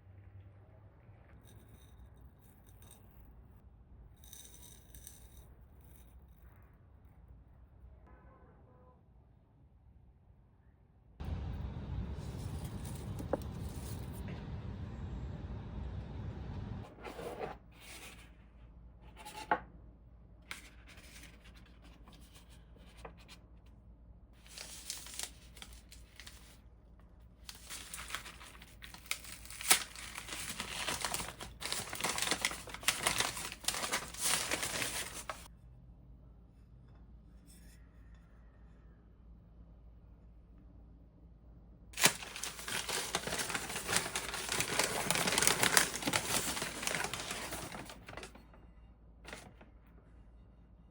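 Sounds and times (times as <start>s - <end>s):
packaging crinkling and tearing: 24.4s - 26.6s, 27.4s - 35.5s, 42.0s - 48.4s.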